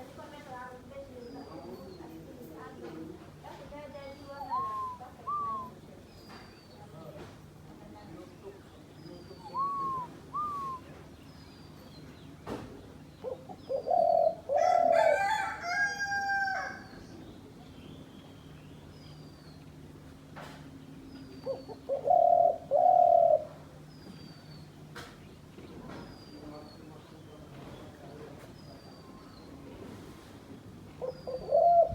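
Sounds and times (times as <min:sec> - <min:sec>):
dove cooing: 0:04.4 - 0:05.8, 0:09.4 - 0:10.9, 0:13.2 - 0:15.4, 0:21.4 - 0:23.7, 0:31.0 - 0:31.9
higher bird call: 0:09.4 - 0:10.8
faint high bird whistles: 0:09.4 - 0:10.9.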